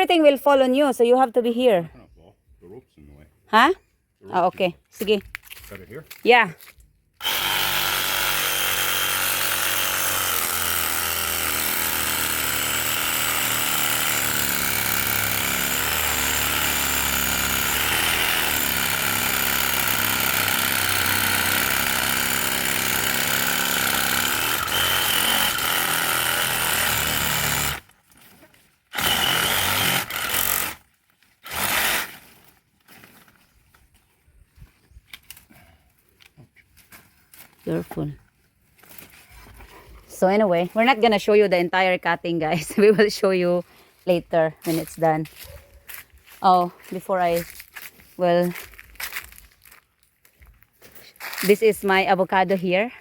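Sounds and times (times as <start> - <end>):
power saw cutting branches: 7.2 - 33.3.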